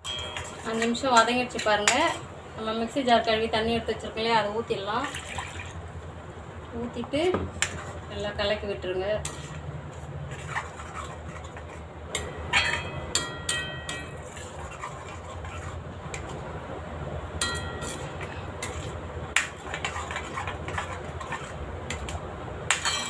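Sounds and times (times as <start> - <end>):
spoon ringing taps on metal: 0.0 - 0.6, 12.2 - 14.1, 17.4 - 18.0
metal spoon scraping pan: 0.0 - 2.3, 7.5 - 8.6, 9.2 - 16.4, 17.4 - 23.0
steady low hum: 0.0 - 23.0.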